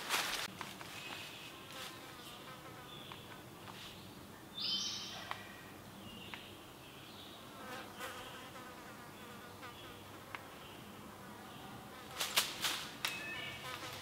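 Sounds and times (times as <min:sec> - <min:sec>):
birds chirping: 0:02.2 - 0:08.4, 0:13.1 - 0:13.8.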